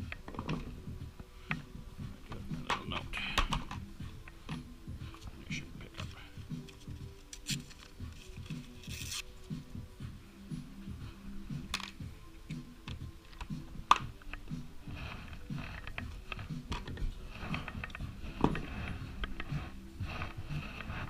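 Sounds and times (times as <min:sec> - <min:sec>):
hand tools and metal parts clinking: 0:02.3 - 0:09.2, 0:11.6 - 0:19.6.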